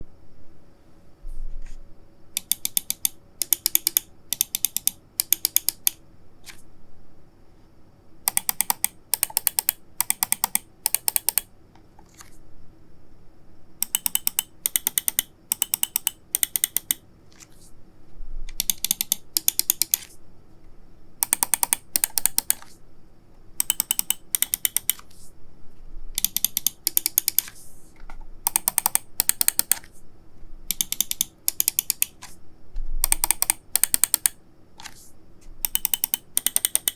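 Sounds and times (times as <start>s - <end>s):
mouse buttons clicking: 2.4s - 6.6s, 8.3s - 12.4s, 13.8s - 17.7s, 18.5s - 20.2s, 21.2s - 22.8s, 23.6s - 25.3s, 26.2s - 30.0s, 30.7s - 32.4s, 33.0s - 36.9s.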